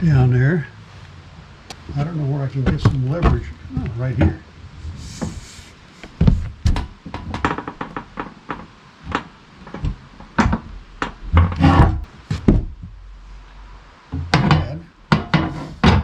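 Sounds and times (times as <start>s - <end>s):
heavy log knocking and thudding: 1.9s - 4.4s, 6.1s - 13.2s, 14.1s - 16.0s
wood and steel knocking: 2.6s - 4.4s, 6.1s - 13.1s, 14.1s - 16.0s.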